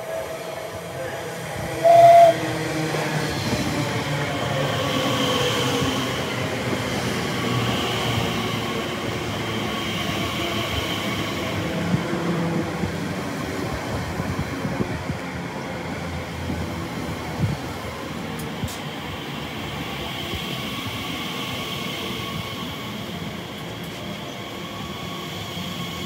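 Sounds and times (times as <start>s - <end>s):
train horn blast: 1.8s - 2.4s.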